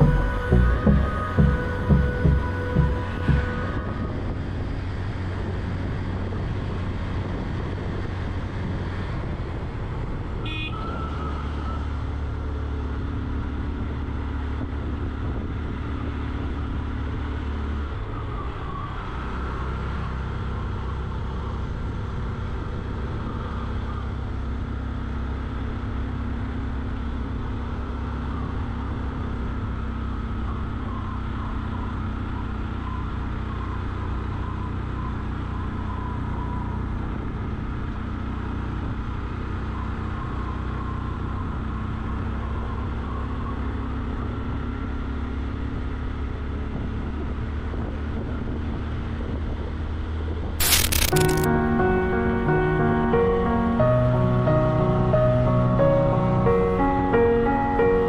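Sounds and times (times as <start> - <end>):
short high tone: 0.0 - 4.2
motorcycle engine running: 0.0 - 8.1.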